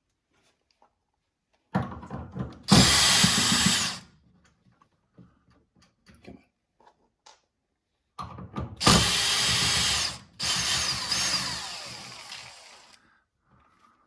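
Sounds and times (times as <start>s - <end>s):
power drill running: 2.7s - 4.0s, 8.8s - 13.0s.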